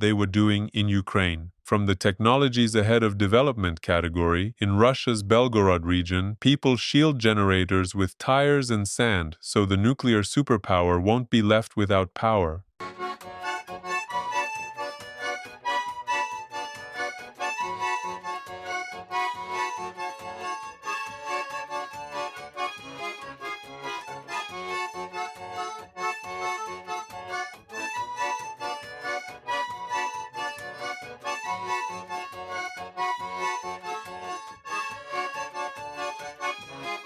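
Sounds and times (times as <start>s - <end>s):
accordion music: 12.8s - 37.0s.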